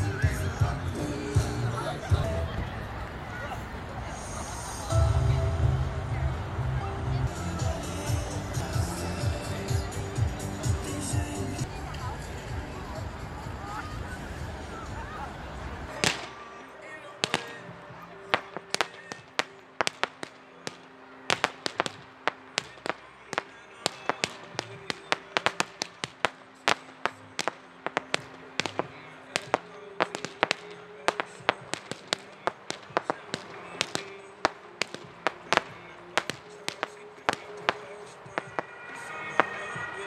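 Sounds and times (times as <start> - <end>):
fireworks bangs: 15.9 - 16.4, 17.2 - 40.0.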